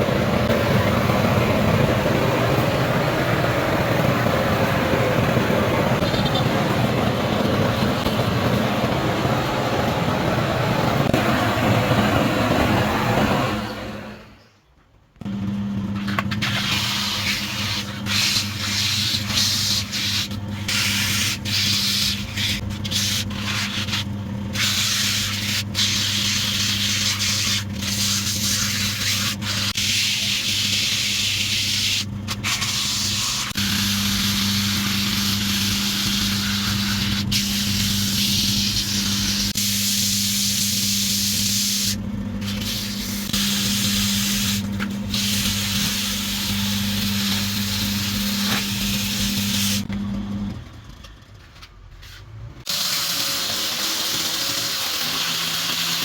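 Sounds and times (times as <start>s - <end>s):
sandpaper hissing on spinning wood: 16.0s - 49.9s, 52.7s - 56.0s
wood lathe humming: 33.0s - 50.5s, 52.7s - 56.0s.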